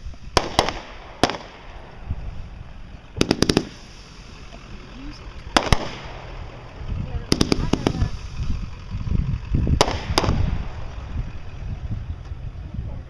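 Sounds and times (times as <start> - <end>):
firework bangs: 0.0 - 9.0, 9.6 - 11.9.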